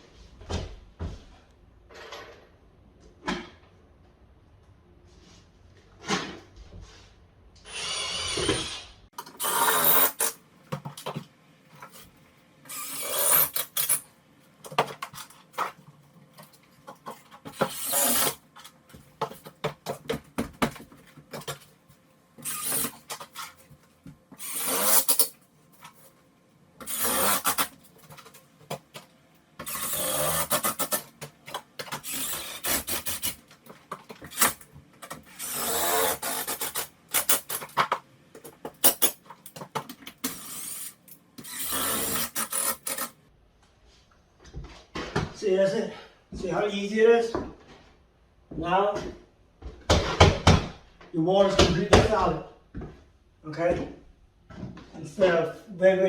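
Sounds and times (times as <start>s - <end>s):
drill driving screws: 7.6s - 10.3s, 12.7s - 14.0s, 17.6s - 18.4s, 22.4s - 23.1s, 24.4s - 25.3s, 26.8s - 27.7s, 29.6s - 31.1s, 31.9s - 33.4s, 35.3s - 37.6s, 40.2s - 43.2s.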